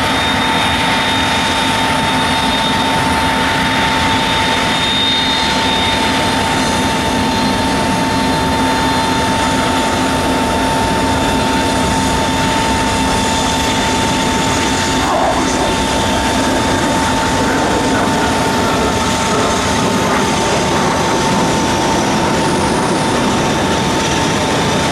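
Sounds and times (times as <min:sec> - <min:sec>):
high engine whine: 0:00.0 - 0:24.9
jet engines running: 0:00.0 - 0:24.9.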